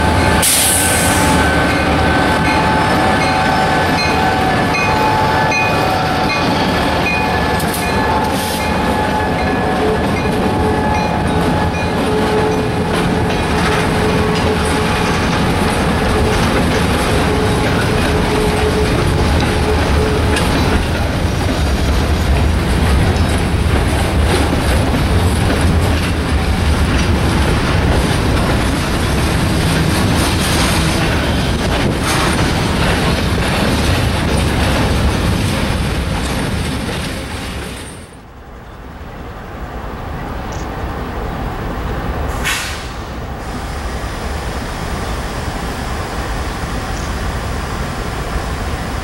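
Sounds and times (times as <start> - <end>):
freight train wheels rumbling: 0.0 - 49.0
background noise: 36.0 - 44.5
brief hiss: 42.4 - 43.2.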